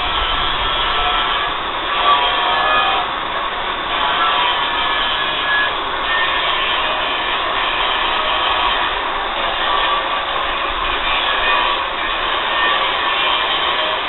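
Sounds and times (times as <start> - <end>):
angle grinder grinding metal: 0.0 - 14.0.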